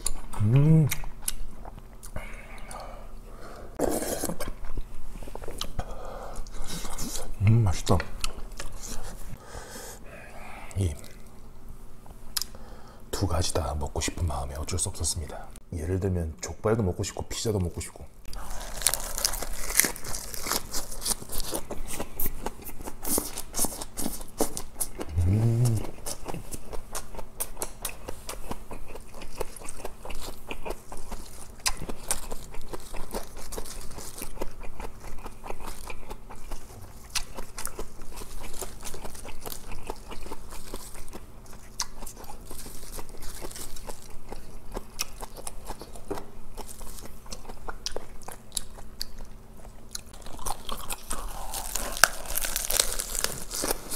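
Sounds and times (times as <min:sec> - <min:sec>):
crisp leaf crunching: 0:18.4 - 0:21.7, 0:51.1 - 0:53.9.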